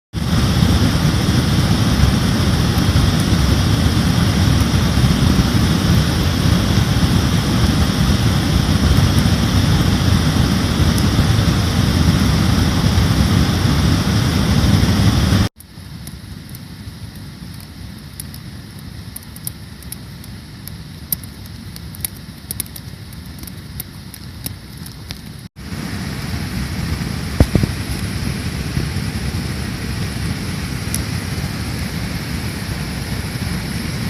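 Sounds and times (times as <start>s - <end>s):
wind buffeting microphone: 0.1s - 15.5s, 25.7s - 34.0s.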